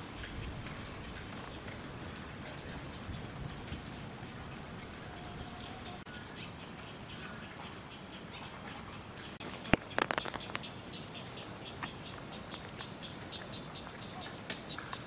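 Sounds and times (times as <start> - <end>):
steady rain falling: 0.0 - 15.0
light taps and ticks: 11.8 - 15.0.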